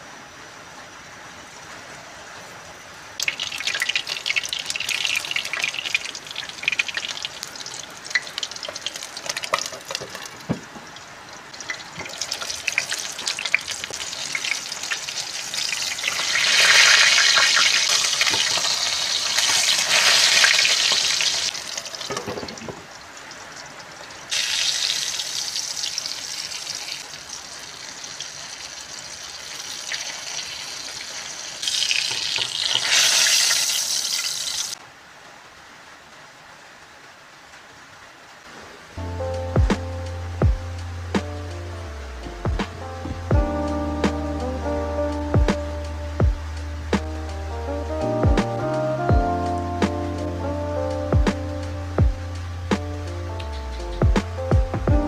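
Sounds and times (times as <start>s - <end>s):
fish sizzling in hot oil: 3.2s - 10.6s, 11.3s - 34.8s.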